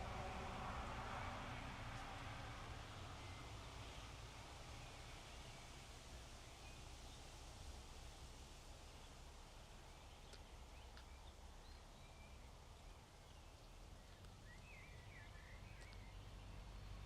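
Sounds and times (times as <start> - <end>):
distant bird chirps: 9.8 - 17.0.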